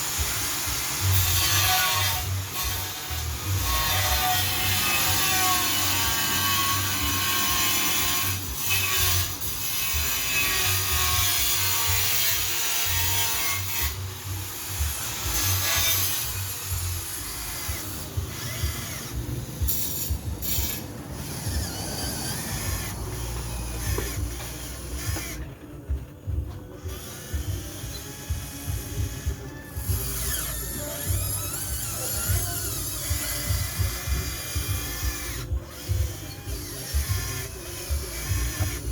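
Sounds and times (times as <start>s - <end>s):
gritty scraping: 0.0s - 38.9s
toy excavator motors whirring: 0.0s - 38.9s.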